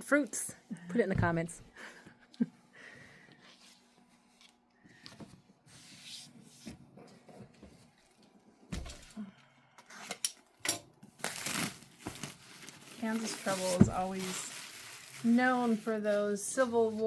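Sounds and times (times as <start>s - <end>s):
fabric crinkles: 11.2s - 17.0s
fabric rustling: 12.4s - 17.0s.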